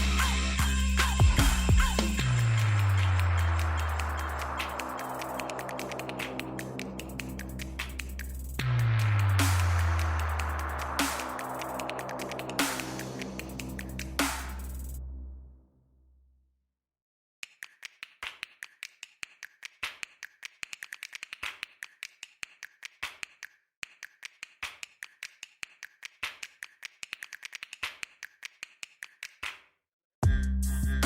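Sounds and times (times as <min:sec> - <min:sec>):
rapid sharp clicks: 0:17.4 - 0:29.5.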